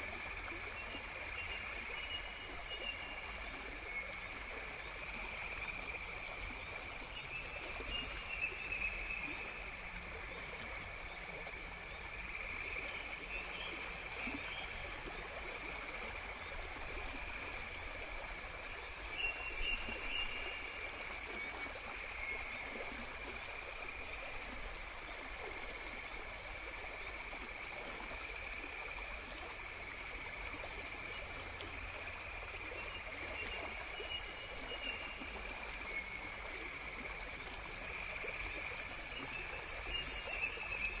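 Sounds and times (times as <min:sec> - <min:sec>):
insects trilling: 0:05.1 - 0:09.7, 0:12.2 - 0:31.9, 0:32.9 - 0:41.0.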